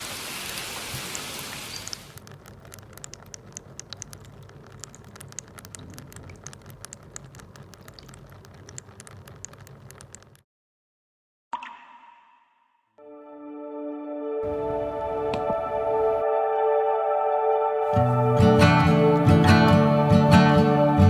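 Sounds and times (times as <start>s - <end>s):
water dripping into a basin: 0.8s - 10.4s, 11.5s - 12.8s.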